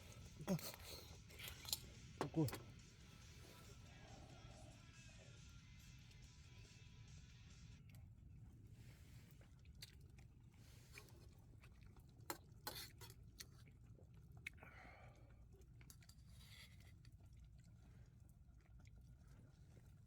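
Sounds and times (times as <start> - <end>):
chewing food: 0.0 - 6.3, 7.8 - 20.0.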